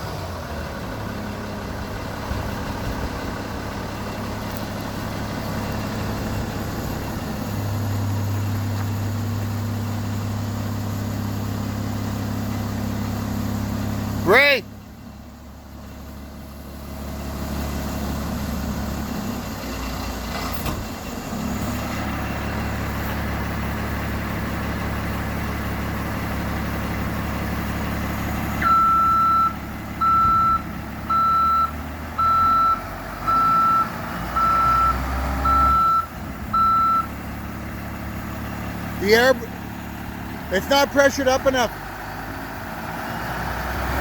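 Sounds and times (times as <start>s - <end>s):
diesel engine running: 0.0s - 44.0s
back-up alarm beeping: 28.6s - 37.1s.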